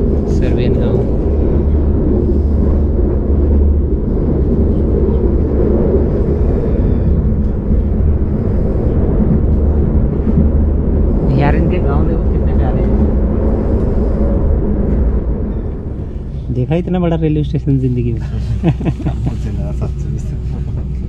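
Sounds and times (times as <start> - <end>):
train wheels rumbling: 0.0 - 21.0.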